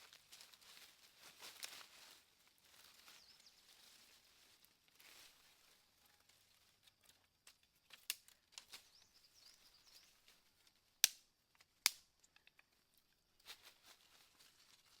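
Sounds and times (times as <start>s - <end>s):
faint bird chirps: 2.8s - 4.0s, 8.4s - 10.6s
sharp clicks and snaps: 11.0s - 12.6s.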